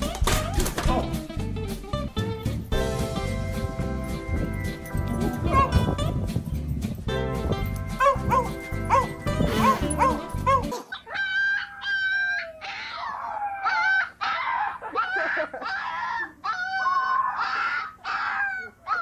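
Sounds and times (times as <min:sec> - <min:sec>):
music with bouncing melody: 0:00.0 - 0:10.9
dog whining howls: 0:08.0 - 0:19.0.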